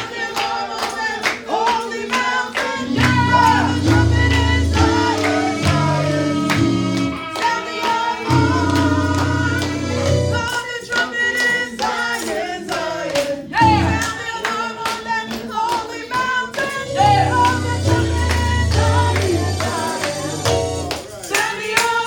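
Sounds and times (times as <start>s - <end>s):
people clapping: 0.0s - 22.0s
voices singing gospel: 0.0s - 22.0s
band with bass line: 3.0s - 7.2s, 8.4s - 10.5s, 13.6s - 14.0s, 17.0s - 20.9s
tambourine: 16.9s - 22.0s.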